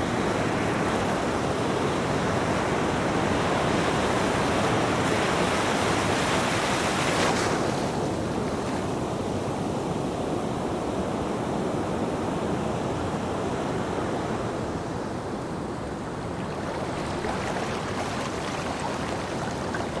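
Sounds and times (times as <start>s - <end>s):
ocean waves breaking on beach: 0.0s - 20.0s.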